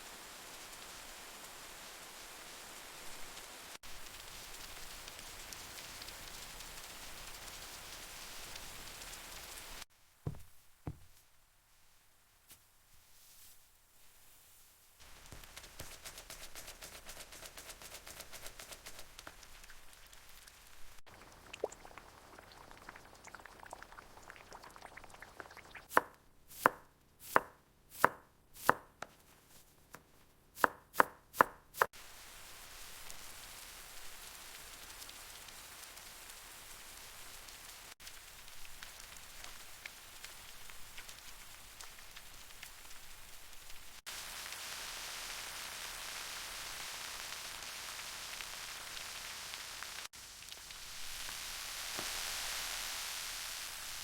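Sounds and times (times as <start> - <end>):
rain dripping: 0.0 - 9.9, 15.0 - 26.0, 31.9 - 54.0
steady hiss: 0.0 - 21.0, 31.8 - 54.0
faint crackle: 0.0 - 25.9, 31.9 - 54.0
knife chopping on cutting board: 10.3 - 11.1, 25.9 - 29.1, 30.6 - 31.9.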